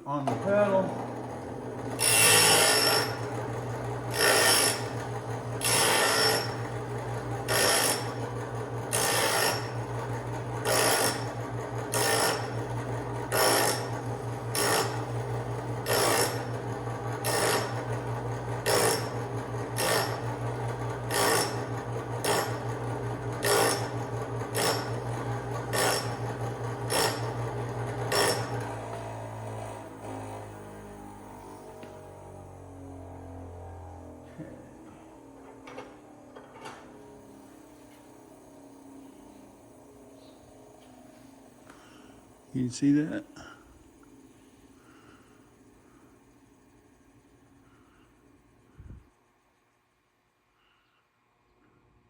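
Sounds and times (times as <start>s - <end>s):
bench grinder humming: 0.0s - 46.7s
drill bit grinding on wheel: 0.4s - 30.5s.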